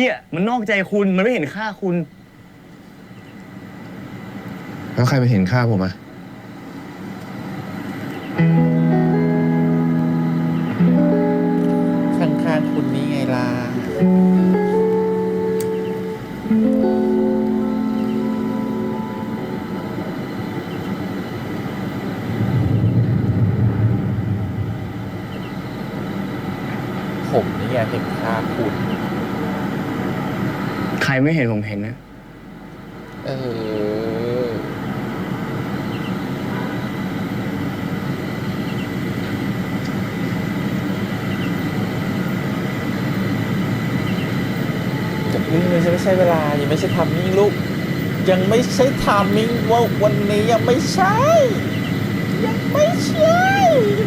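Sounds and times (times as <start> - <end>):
low rumbling background noise: 0.0 - 54.0
guitar music: 8.4 - 22.6
aircraft engine rumble: 19.3 - 27.2
faint double chirp: 24.3 - 26.5.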